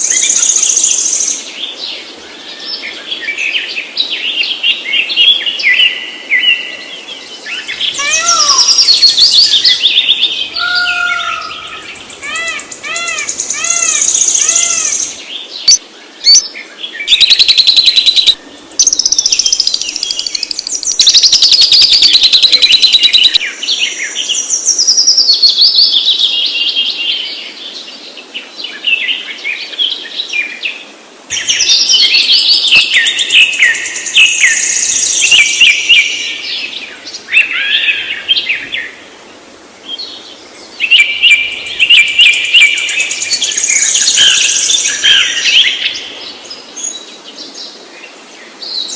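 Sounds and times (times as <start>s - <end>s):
songbirds singing and chirping: 0.0s - 48.9s
loud rapid bird trills: 17.1s - 23.4s.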